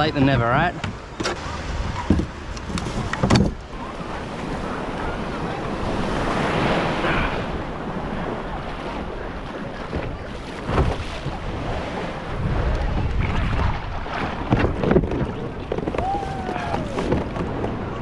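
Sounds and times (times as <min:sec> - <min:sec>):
sea waves washing: 0:00.0 - 0:18.0
wind buffeting microphone: 0:00.0 - 0:18.0.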